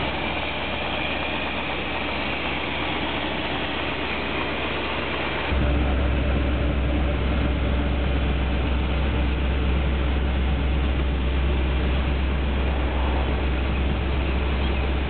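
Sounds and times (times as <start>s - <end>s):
hiss: 0.0s - 5.5s, 11.8s - 14.6s
car engine idling: 0.0s - 15.0s.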